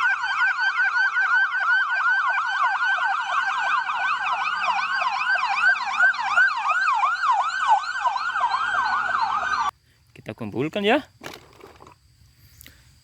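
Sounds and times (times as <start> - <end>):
second overlapping siren yelp: 0.0 - 9.7
toy police car siren yelping: 0.0 - 9.7.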